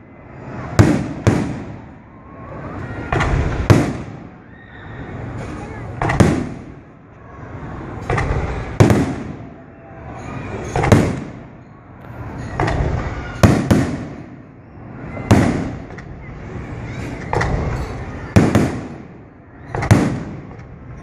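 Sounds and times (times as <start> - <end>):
fireworks bursting with echo: 0.5 - 2.0, 3.0 - 4.5, 5.2 - 7.0, 8.0 - 9.6, 10.6 - 11.6, 12.5 - 20.8.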